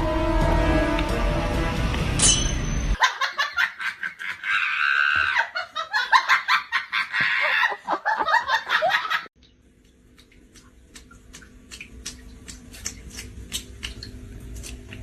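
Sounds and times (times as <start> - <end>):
high-pitched laughter: 3.0 - 9.3.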